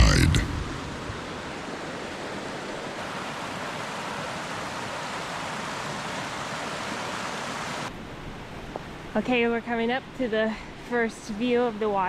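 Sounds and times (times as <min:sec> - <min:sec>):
fast-flowing water rushing: 0:00.6 - 0:07.9.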